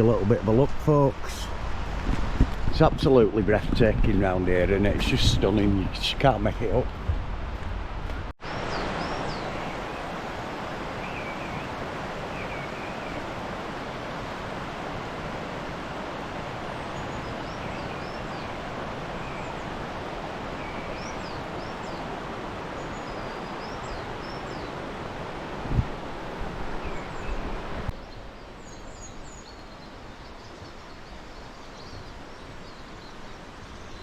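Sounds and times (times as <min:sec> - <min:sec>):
songbirds chirping: 0:00.0 - 0:01.9, 0:02.6 - 0:07.0, 0:08.4 - 0:34.0
river water rushing: 0:07.0 - 0:34.0.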